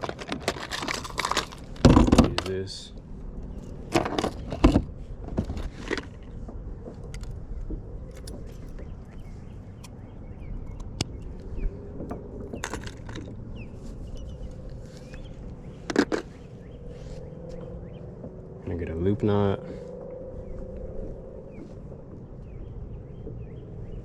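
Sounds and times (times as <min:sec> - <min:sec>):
low steady rumble: 0:00.7 - 0:24.0
clicks and clinks of metal hooks: 0:08.1 - 0:13.4.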